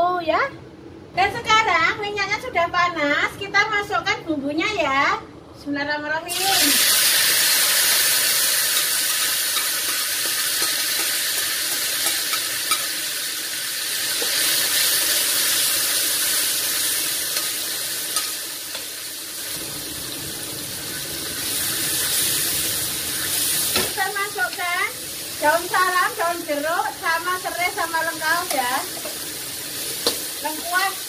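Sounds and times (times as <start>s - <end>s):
spice paste sizzling in oil: 6.3s - 31.0s.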